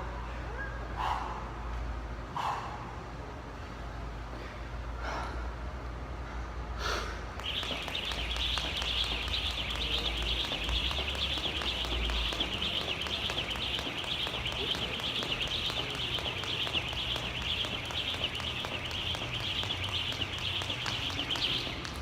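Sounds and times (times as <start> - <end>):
dense high-pitched chirping: 7.4 - 21.9.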